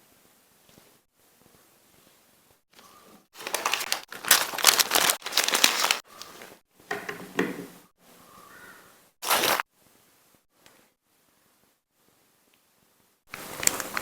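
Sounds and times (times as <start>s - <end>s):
crinkling and crackling: 0.6s - 7.1s, 13.3s - 14.0s.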